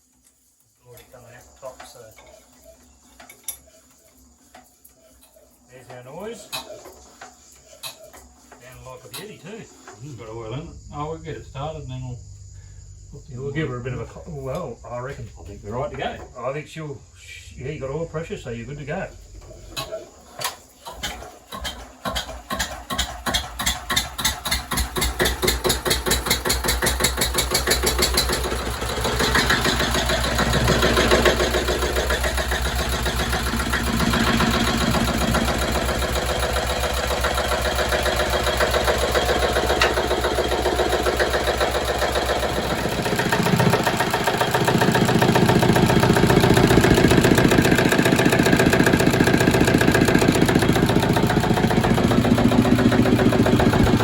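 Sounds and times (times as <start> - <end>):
diesel engine starting and running: 20.8 - 54.0.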